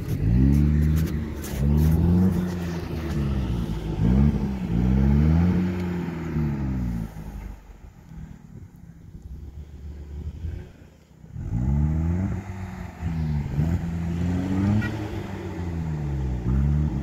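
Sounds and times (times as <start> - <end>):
car engine revving hard: 0.0 - 7.7, 11.3 - 17.0.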